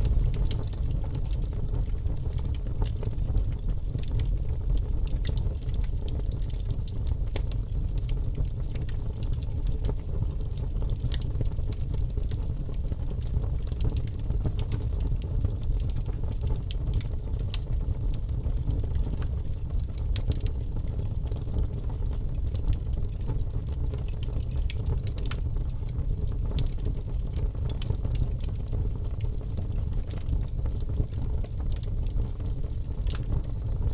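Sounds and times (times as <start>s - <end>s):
flames rushing: 0.0s - 5.6s
logs crackling and popping: 0.0s - 33.9s.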